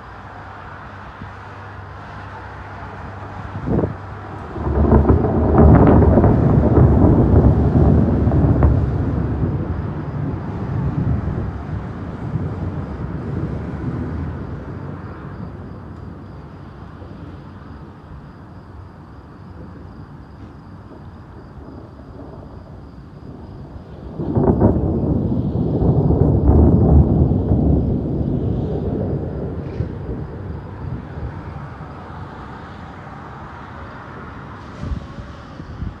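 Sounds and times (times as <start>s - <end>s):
thunder cracking and rumbling: 0.8s - 36.0s.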